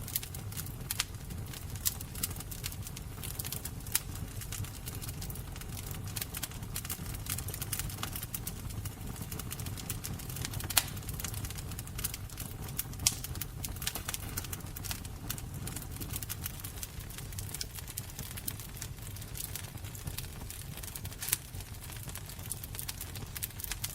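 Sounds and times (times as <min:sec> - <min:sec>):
wood fire crackling: 0:00.0 - 0:23.9.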